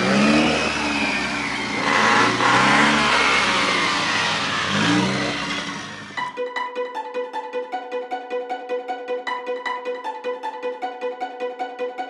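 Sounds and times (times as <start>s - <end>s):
car engine revving: 0.0s - 6.4s
exhaust rush: 0.0s - 6.4s.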